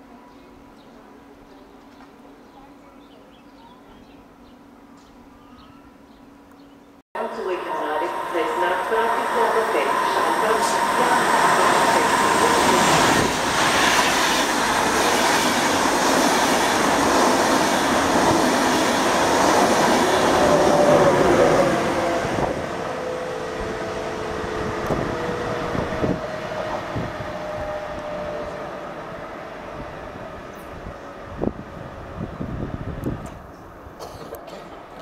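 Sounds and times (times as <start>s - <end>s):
faint train whine: 0.0s - 35.0s
train wheels rumbling on rails: 7.7s - 35.0s.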